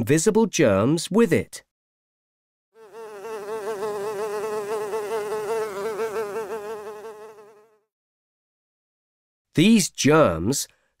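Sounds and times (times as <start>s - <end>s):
housefly buzzing: 2.8s - 7.9s.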